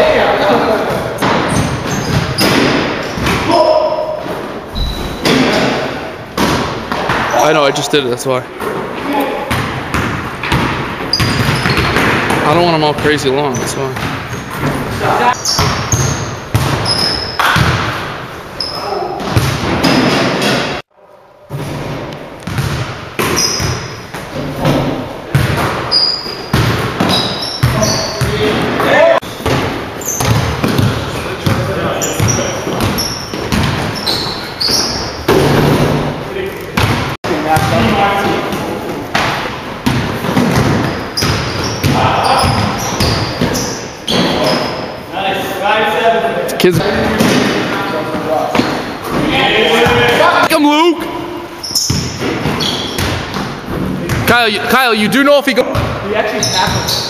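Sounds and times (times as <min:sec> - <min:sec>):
sneaker squeaks: 0:01.2 - 0:05.8, 0:08.6 - 0:17.8, 0:18.5 - 0:20.7, 0:22.4 - 0:35.8, 0:39.8 - 0:45.1, 0:47.2 - 0:54.2, 0:55.8 - 0:57.0
basketball bouncing on hardwood floor: 0:09.5 - 0:12.4, 0:15.4 - 0:18.0, 0:19.2 - 0:20.6, 0:21.5 - 0:25.9, 0:26.5 - 0:28.3, 0:29.4 - 0:34.0, 0:36.8 - 0:44.3, 0:51.8 - 0:54.3.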